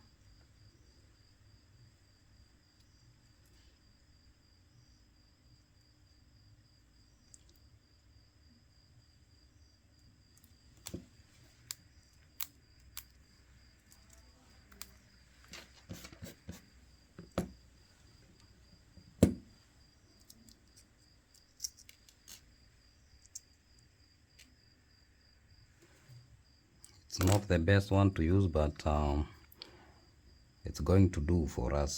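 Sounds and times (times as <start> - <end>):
faint high-pitched whine: 0.0 - 31.9
small tools clicking and tapping: 20.2 - 22.5.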